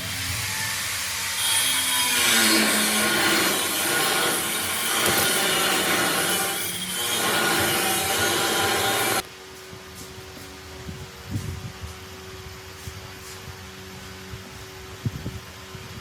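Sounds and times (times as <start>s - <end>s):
power tool rasping: 0.0s - 9.2s.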